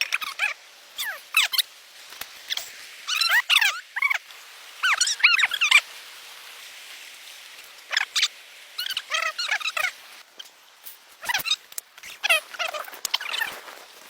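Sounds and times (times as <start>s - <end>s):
squeaky animal chirps: 0.0s - 1.6s, 2.5s - 4.2s, 4.8s - 5.8s, 7.9s - 10.5s, 11.2s - 13.5s.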